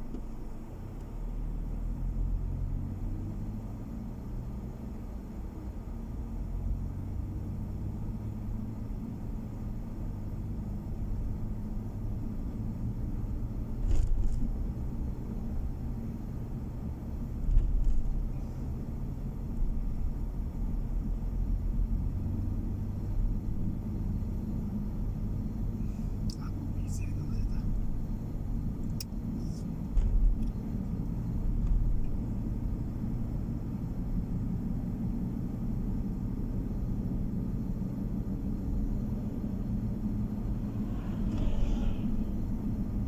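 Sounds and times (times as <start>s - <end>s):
car engine and tyres on road: 0.0s - 43.0s
low thump: 40.4s - 42.7s.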